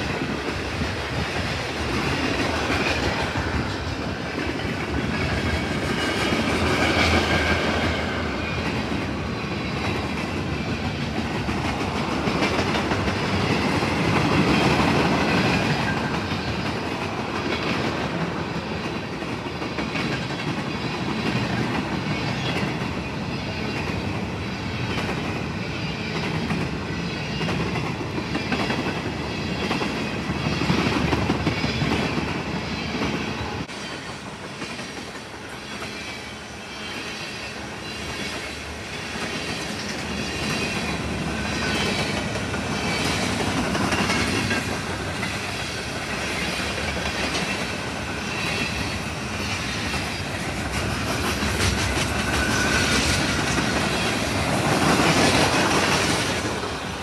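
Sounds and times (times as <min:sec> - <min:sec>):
train rumble: 0:00.0 - 0:57.0
train wheels clicking over rail joints: 0:39.0 - 0:57.0
high wheel squeal: 0:52.2 - 0:54.3.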